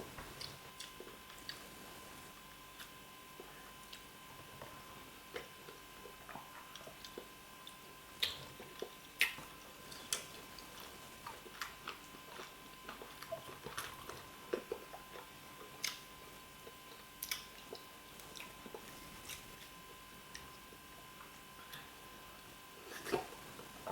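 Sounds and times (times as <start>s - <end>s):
soft wet chewing: 0.2s - 23.9s.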